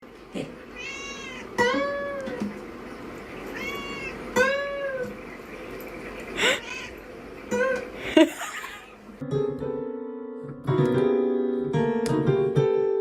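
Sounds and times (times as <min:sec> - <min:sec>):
cat meowing: 0:00.7 - 0:02.4, 0:03.5 - 0:05.1, 0:06.5 - 0:07.8.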